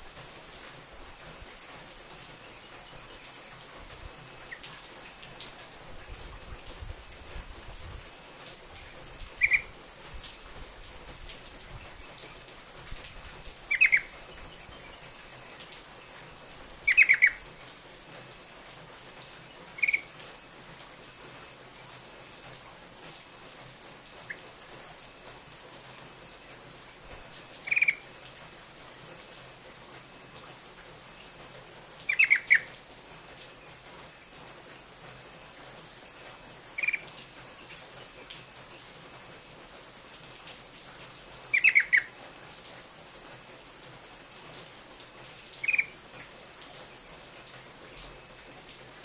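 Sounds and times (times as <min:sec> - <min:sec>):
bird chirping calls: 0:08.9 - 0:09.8, 0:13.7 - 0:15.2, 0:16.8 - 0:17.4, 0:19.8 - 0:20.1, 0:27.6 - 0:28.0, 0:32.1 - 0:32.7, 0:36.8 - 0:37.1, 0:41.5 - 0:42.1, 0:45.6 - 0:46.0.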